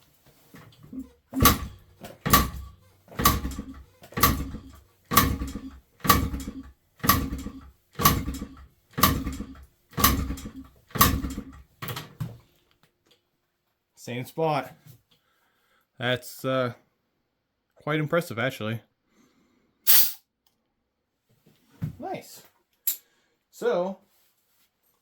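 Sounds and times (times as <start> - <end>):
motorcycle engine kicked over: 0.8 - 12.2.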